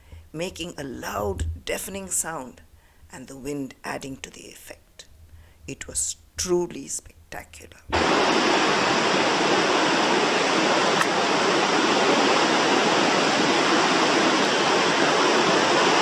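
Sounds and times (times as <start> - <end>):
waterfall roaring: 7.9 - 16.0.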